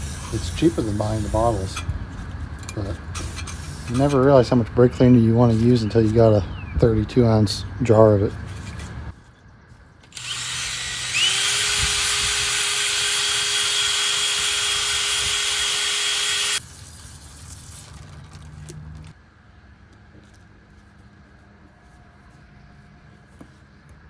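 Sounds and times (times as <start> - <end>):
power tool motor whine: 10.1 - 16.6.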